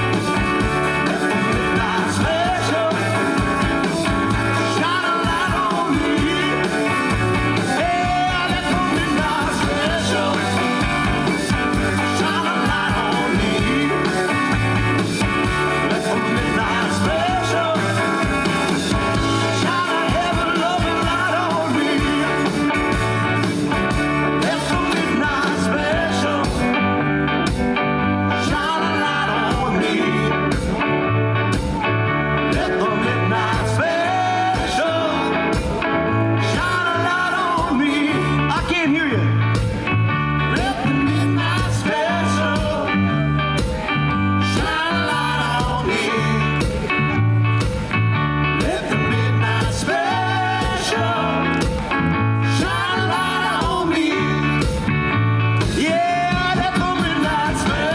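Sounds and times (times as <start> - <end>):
live rock band playing: 0.0 - 57.9.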